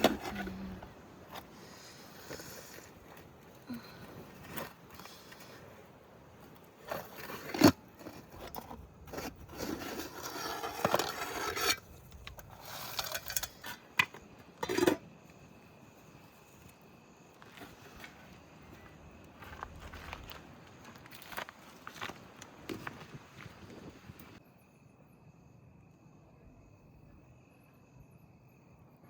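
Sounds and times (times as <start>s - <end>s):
cooking utensils scraping: 7.1s - 14.0s.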